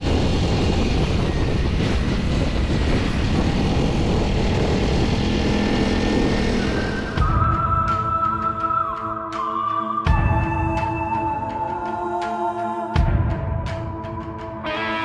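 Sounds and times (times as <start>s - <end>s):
motorcycle engine drone: 0.0s - 8.4s
wind rumble on microphone: 0.0s - 8.9s.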